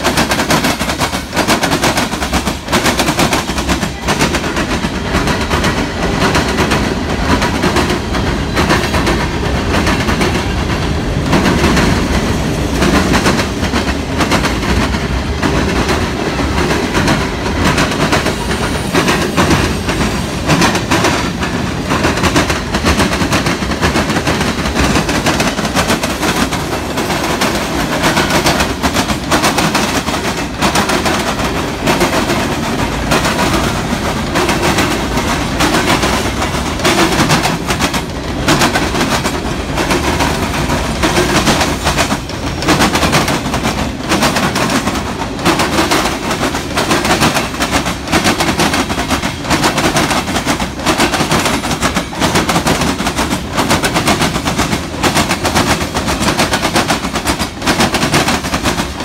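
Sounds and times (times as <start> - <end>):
train wheels clattering over rail joints: 0.0 - 59.0.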